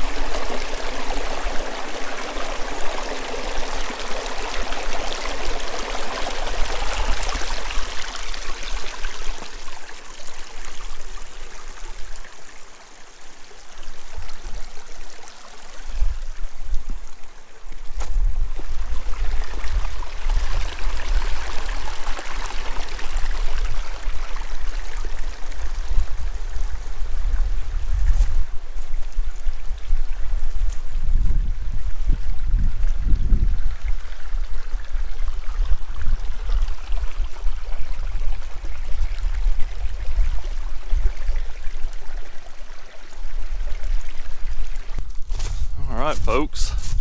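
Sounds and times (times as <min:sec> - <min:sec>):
water rushing over rocks: 0:00.0 - 0:10.5.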